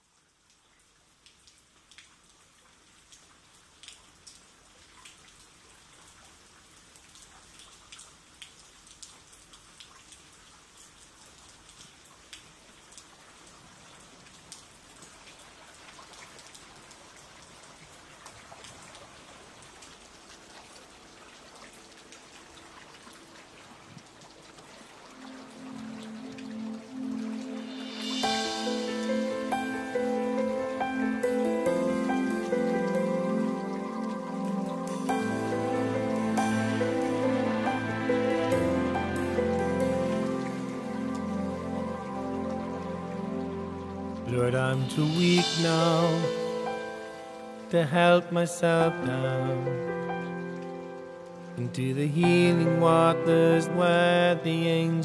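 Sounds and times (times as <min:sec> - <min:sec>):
rain patter: 0:00.0 - 0:55.0
faint sustained music notes: 0:25.1 - 0:54.9.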